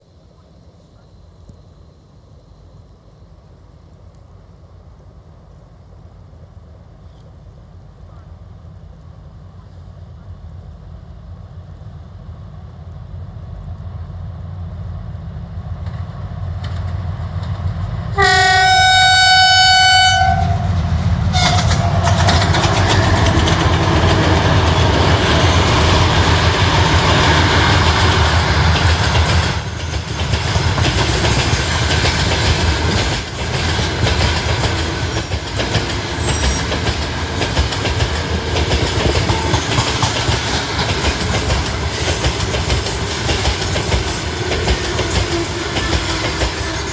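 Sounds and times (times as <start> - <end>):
diesel locomotives rumbling: 0.7 - 46.9
train wheels clickety-clack: 15.7 - 18.2, 20.6 - 46.9
locomotive horn: 18.2 - 22.1.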